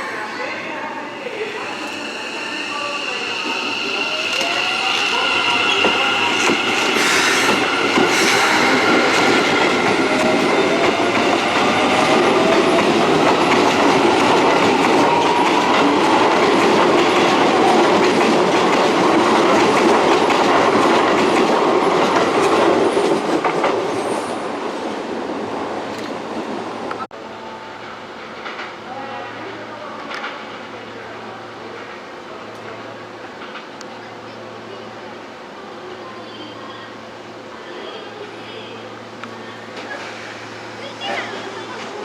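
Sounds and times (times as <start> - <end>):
train wheels clacking on rails: 3.7 - 23.9.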